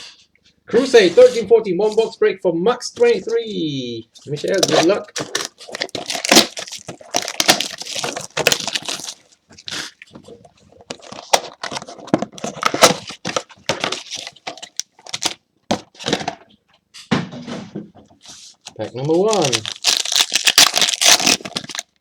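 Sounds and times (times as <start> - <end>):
plastic wrap crinkling and tearing: 4.3 - 15.4, 19.1 - 22.0.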